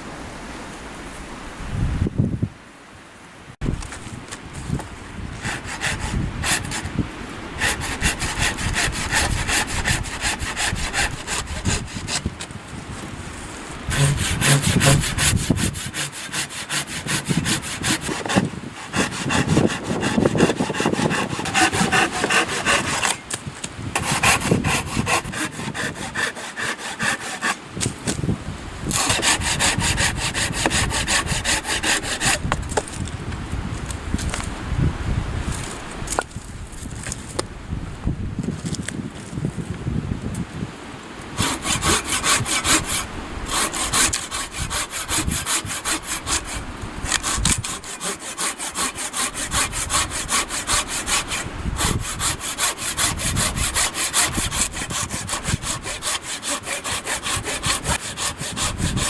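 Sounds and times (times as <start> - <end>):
hand saw cutting wood: 4.7 - 7.0, 7.6 - 28.2, 28.8 - 33.0, 41.3 - 59.0.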